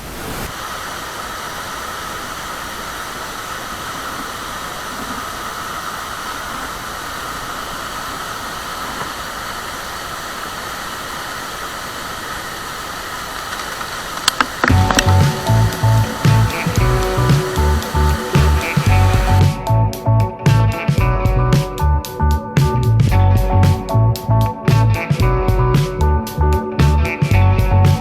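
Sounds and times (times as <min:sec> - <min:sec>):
waterfall rushing: 0:00.0 - 0:19.6
sharp clicks: 0:13.4 - 0:15.8.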